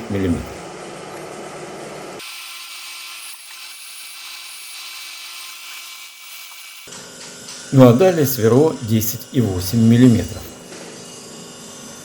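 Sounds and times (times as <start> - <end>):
steady machine hum: 0.0 - 12.0
boring machine drilling metal: 2.2 - 6.9.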